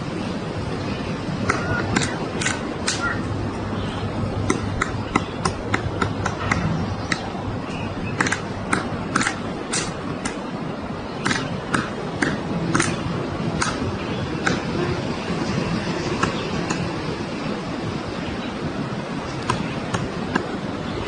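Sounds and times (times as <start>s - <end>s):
steady background noise: 0.0s - 21.0s
woodpecker knocking on tree trunk: 8.2s - 10.4s.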